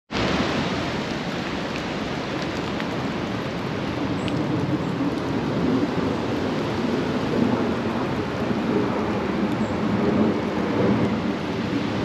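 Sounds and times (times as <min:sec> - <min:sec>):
steady rain falling: 0:00.1 - 0:12.0.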